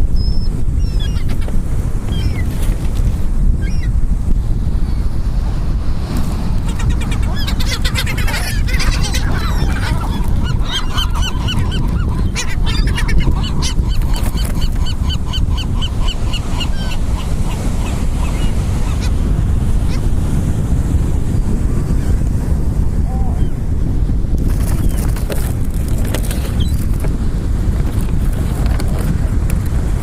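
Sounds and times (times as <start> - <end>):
wind and surf rumble: 0.0 - 30.0
seagulls squawking: 0.2 - 2.4, 6.6 - 19.2.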